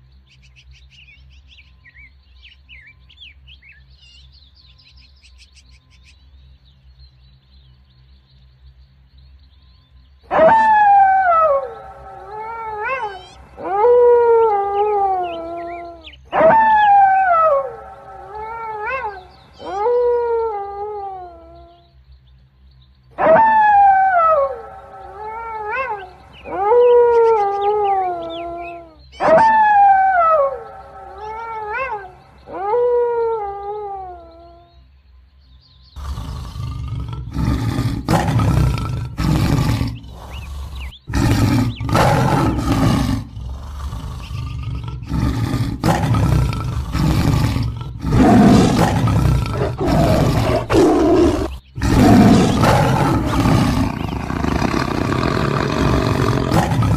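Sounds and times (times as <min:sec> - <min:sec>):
tiger roaring and growling: 0:10.3 - 0:21.3, 0:36.0 - 0:56.9
wolf howling: 0:10.3 - 0:21.8, 0:23.2 - 0:34.6, 0:36.0 - 0:56.9.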